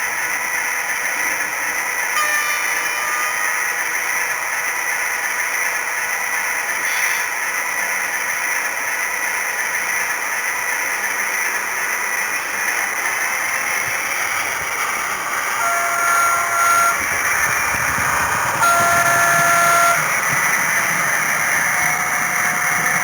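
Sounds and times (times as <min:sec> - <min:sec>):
model train running noise: 0:00.0 - 0:23.0
train horn note: 0:02.2 - 0:03.8, 0:15.5 - 0:20.8
diesel engine sound effect: 0:10.4 - 0:23.0.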